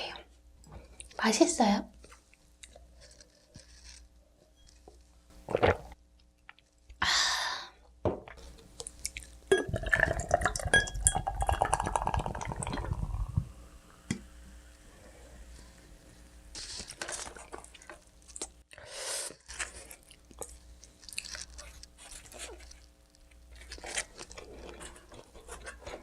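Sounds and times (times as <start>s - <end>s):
glass clinking: 9.5s - 12.8s
liquid pouring: 9.5s - 13.5s.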